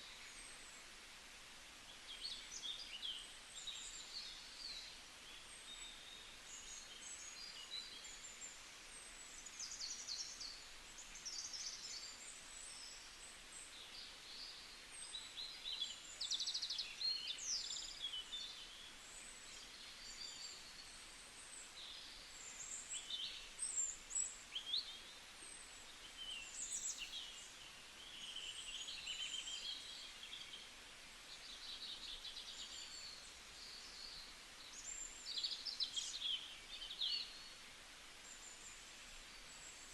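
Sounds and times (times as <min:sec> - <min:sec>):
steady high hiss: 0:00.0 - 0:39.9
wild birds chirping: 0:25.8 - 0:37.6.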